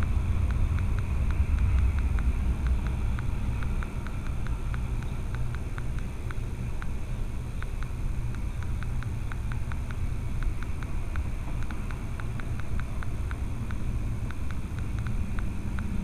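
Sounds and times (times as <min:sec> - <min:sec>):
low vehicle rumble: 0:00.0 - 0:16.0.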